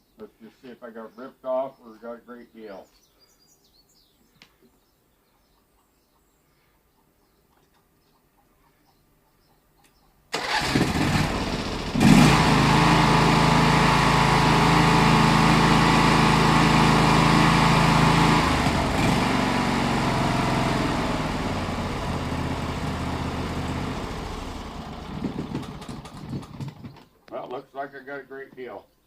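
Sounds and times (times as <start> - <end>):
small mower engine running: 10.4 - 27.0.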